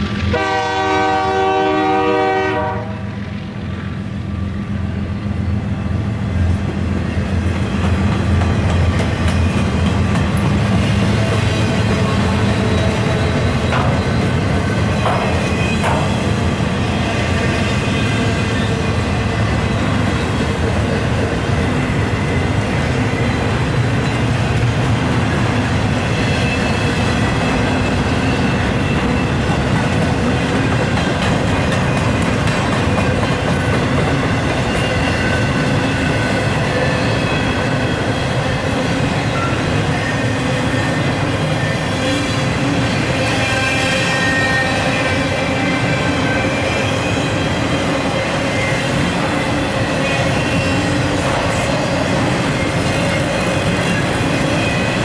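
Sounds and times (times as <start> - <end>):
steel wheels rumbling on rails: 0.0 - 55.0
faint high wheel squeal: 26.1 - 29.5, 39.2 - 55.0.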